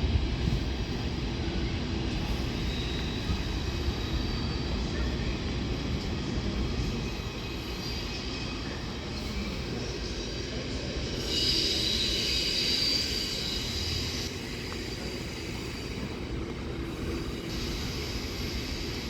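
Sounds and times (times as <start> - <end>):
train rumbling: 0.0 - 19.0
metallic wheel squeal: 11.0 - 16.2.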